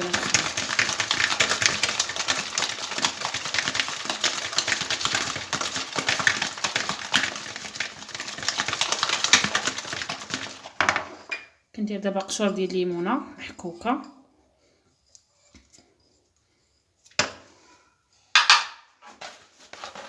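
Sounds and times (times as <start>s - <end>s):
electric hand mixer beating: 0.0s - 10.7s.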